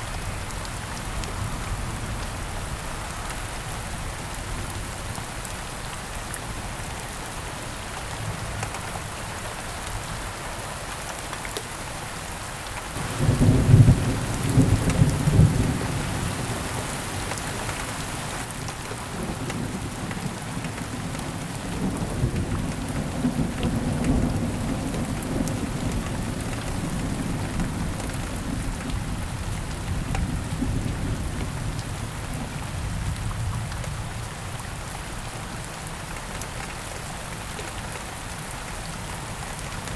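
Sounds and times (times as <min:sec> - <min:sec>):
steady rain: 0:00.0 - 0:39.9
thunder clap and rumble: 0:13.0 - 0:16.7.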